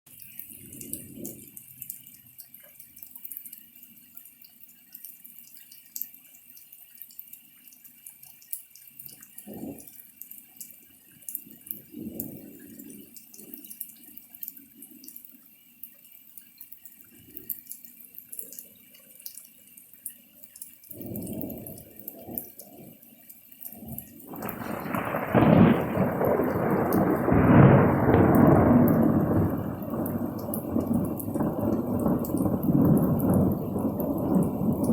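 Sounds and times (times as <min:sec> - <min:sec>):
rain dripping: 0:00.1 - 0:34.9
faint low thunder rumbles: 0:21.0 - 0:22.6, 0:23.8 - 0:34.9
loud thunder: 0:24.3 - 0:34.9.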